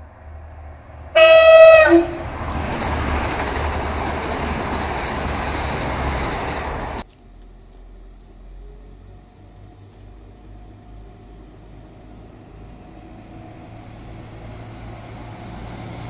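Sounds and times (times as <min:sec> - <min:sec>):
train passing: 0:00.0 - 0:07.1, 0:08.4 - 0:16.0
train two-tone horn: 0:01.1 - 0:02.4.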